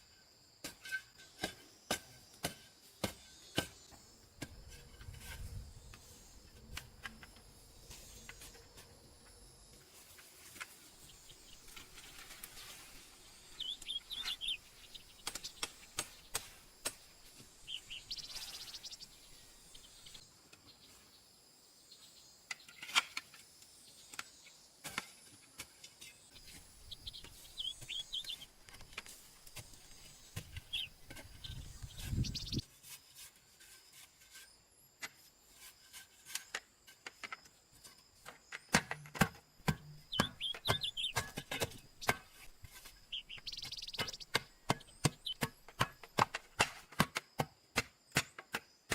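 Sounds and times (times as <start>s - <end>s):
high insect hum: 0.0s - 32.7s, 39.4s - 46.6s
small birds chirping: 10.6s - 22.9s, 26.0s - 32.6s, 39.6s - 46.5s.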